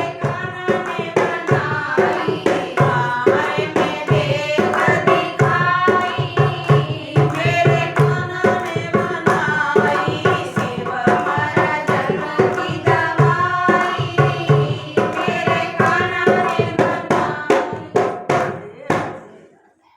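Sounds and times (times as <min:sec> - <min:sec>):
hand drum beat: 0:00.0 - 0:19.2
woman singing: 0:00.0 - 0:19.7.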